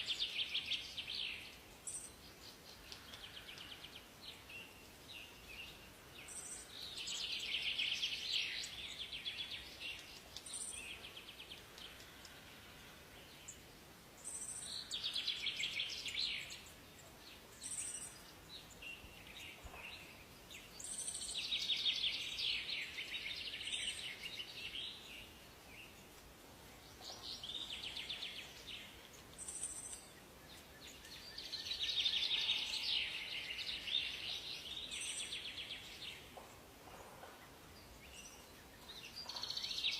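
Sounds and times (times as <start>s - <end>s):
faint steady hiss: 0.0s - 39.9s
songbirds trilling: 0.0s - 39.9s.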